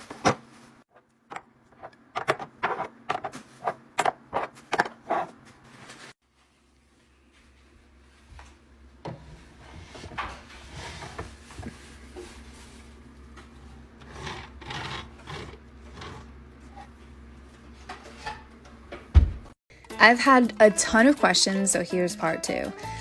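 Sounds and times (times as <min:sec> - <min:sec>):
kitchen items clacking and knocking: 0:00.0 - 0:05.4.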